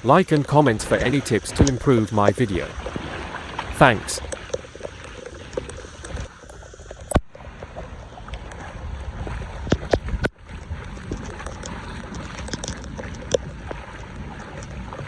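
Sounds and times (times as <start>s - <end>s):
water rushing into drain: 0.4s - 8.8s
sharp knocks or splashes: 8.4s - 15.0s.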